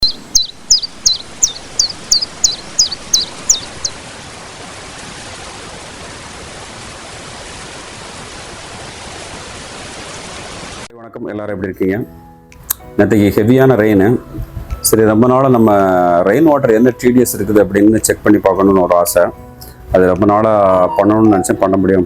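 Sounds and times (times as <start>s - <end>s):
bird high-pitched chirps: 0.0s - 4.0s
heavy rain hiss: 0.0s - 10.9s.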